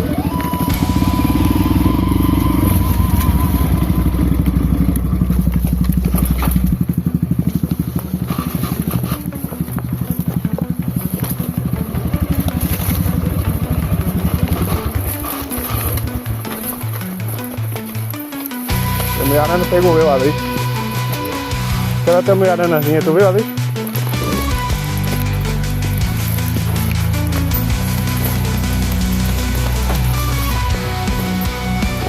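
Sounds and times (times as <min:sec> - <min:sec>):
off-road motorcycle engine: 0:00.0 - 0:32.0.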